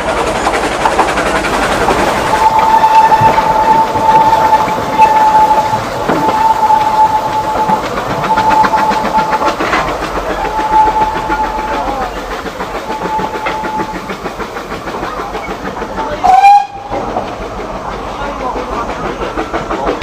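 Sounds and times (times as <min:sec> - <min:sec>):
steam train wheels clattering: 0:00.0 - 0:20.0
high squeal or whistle: 0:02.3 - 0:09.4, 0:10.4 - 0:11.9.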